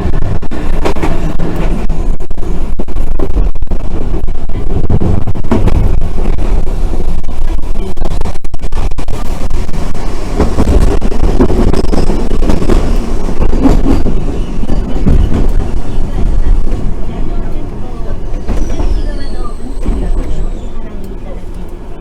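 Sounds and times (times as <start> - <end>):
tram wheels rumbling on track: 0.0 - 22.0
knocks from tram running gear: 4.9 - 6.5, 10.4 - 17.4.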